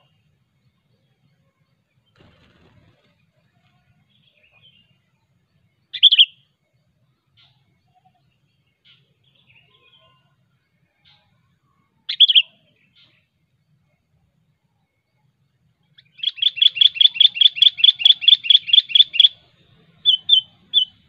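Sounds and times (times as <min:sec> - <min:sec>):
faint bird chirps: 0:00.0 - 0:21.0
bird calling loud clear notes: 0:16.0 - 0:21.0.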